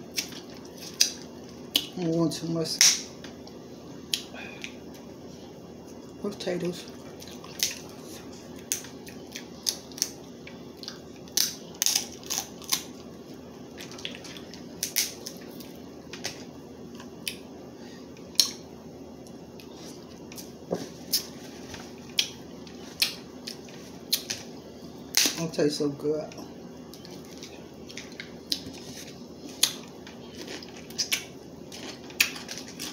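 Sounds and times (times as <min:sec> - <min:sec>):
steady low hum: 0:00.0 - 0:32.9
crab shell cracking while eating: 0:08.6 - 0:10.2, 0:10.8 - 0:12.9, 0:13.8 - 0:16.4, 0:29.6 - 0:32.9.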